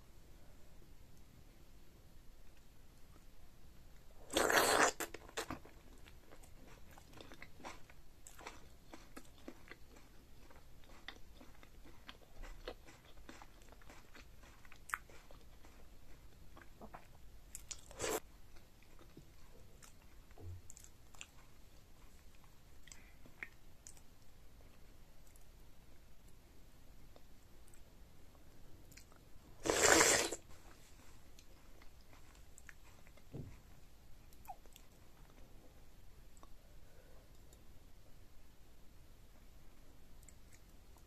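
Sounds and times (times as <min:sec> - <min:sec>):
person chewing food: 0:04.3 - 0:24.2, 0:28.9 - 0:35.4.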